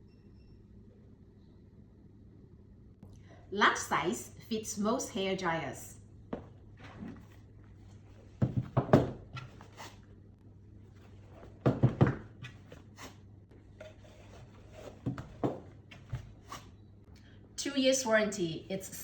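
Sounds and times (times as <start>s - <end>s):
knocks and rustles from handling: 6.3s - 10.0s, 10.9s - 16.7s.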